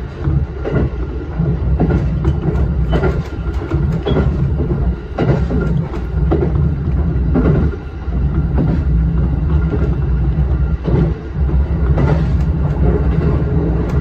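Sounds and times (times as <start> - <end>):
train low rumble: 0.0 - 14.0
wheels clacking over rails: 0.0 - 14.0.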